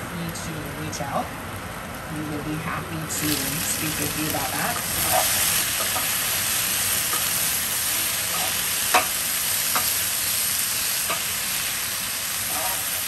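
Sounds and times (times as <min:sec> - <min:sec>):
vegetables sizzling in a skillet: 0:00.8 - 0:13.0.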